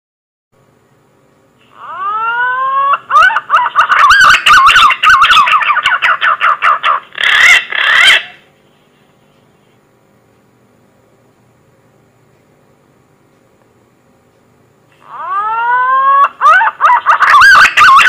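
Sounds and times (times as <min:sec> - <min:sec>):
pigeon whistling song: 0:01.8 - 0:08.4, 0:15.1 - 0:18.0.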